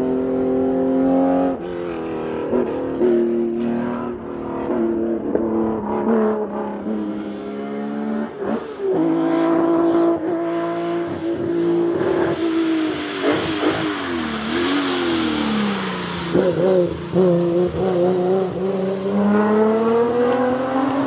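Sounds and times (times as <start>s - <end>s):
car engine and exhaust running: 11.1s - 20.1s.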